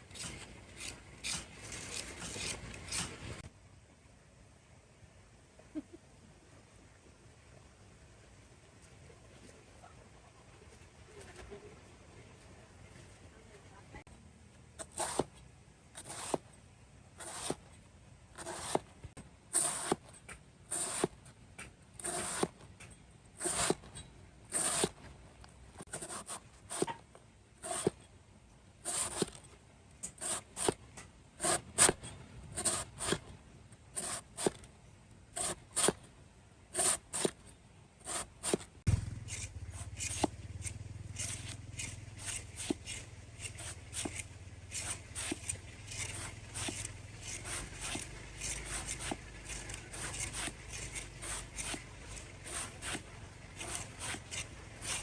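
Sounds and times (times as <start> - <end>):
short scraping strokes: 14.8 - 15.4, 16.0 - 16.5, 17.2 - 17.7, 18.4 - 18.9, 19.5 - 22.6, 23.4 - 25.1, 27.6 - 28.0, 28.8 - 30.8, 31.4 - 33.3, 33.9 - 34.7, 35.4 - 36.1, 38.0 - 55.0.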